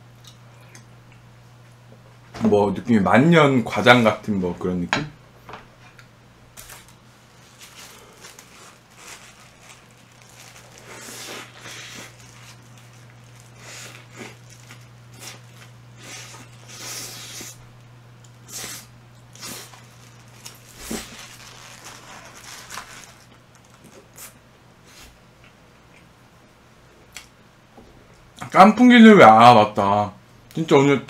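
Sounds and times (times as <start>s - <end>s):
low electrical hum: 0.0s - 31.0s
chewing and crunching: 7.6s - 17.4s.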